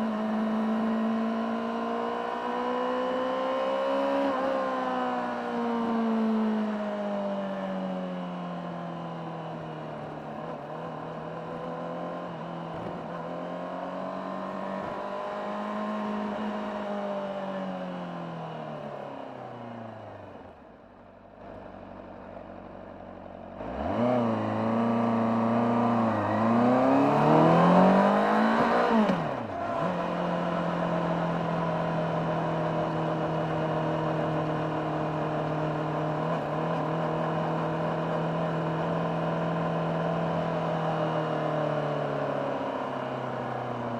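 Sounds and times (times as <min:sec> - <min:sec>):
motorcycle engine revving: 0:23.6 - 0:41.2.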